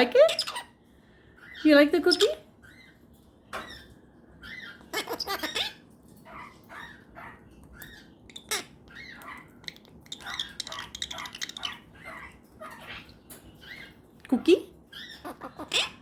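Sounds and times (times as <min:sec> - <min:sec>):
parrot squeaky calls: 0:00.0 - 0:00.8, 0:01.4 - 0:03.0, 0:03.6 - 0:14.0, 0:14.9 - 0:16.0.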